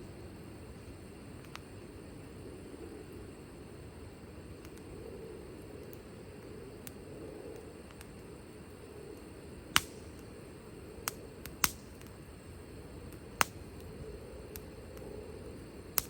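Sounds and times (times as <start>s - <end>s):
low background noise: 0.0s - 16.0s
wood fire crackling: 4.5s - 16.0s
sharp fire pops: 9.7s - 10.3s, 11.0s - 12.2s, 13.1s - 13.9s.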